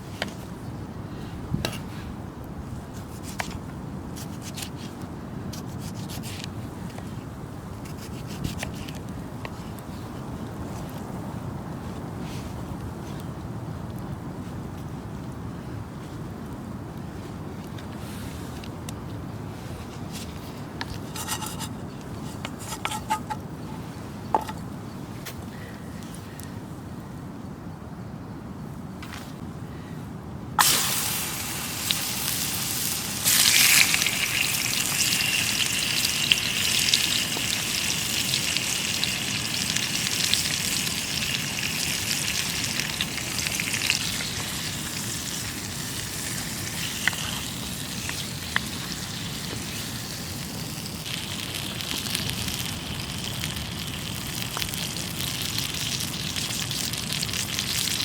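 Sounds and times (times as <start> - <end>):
food sizzling in a pan: 30.6 - 47.5
fire crackles: 30.6 - 58.0.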